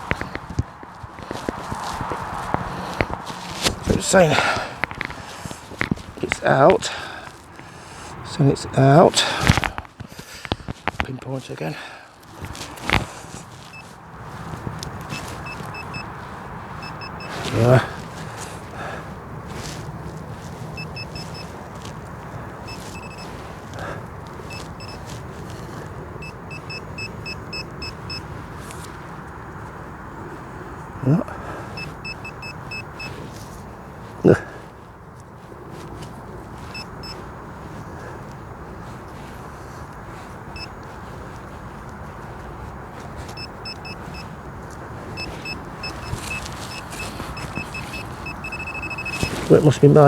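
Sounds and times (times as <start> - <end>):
wind rumble on microphone: 0.0 - 6.5
soil scuffing: 0.0 - 50.0
metal detector beeping: 12.2 - 18.2, 19.6 - 28.9, 31.7 - 33.6, 36.6 - 38.3, 40.2 - 42.0, 43.2 - 50.0.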